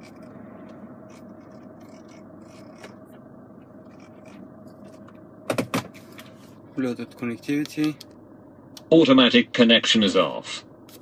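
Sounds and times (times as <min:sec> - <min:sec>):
car running hum: 0:00.0 - 0:11.0.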